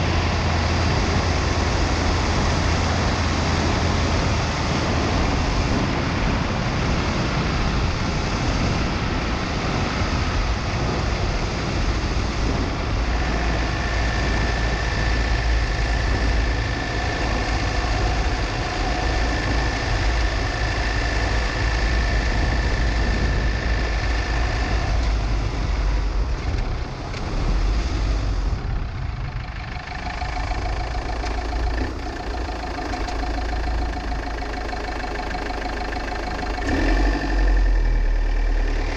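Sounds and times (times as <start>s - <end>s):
wind buffeting: 0.0s - 26.8s
car engine running: 0.0s - 38.9s
road noise: 0.0s - 38.9s
steady high whine: 0.0s - 38.9s.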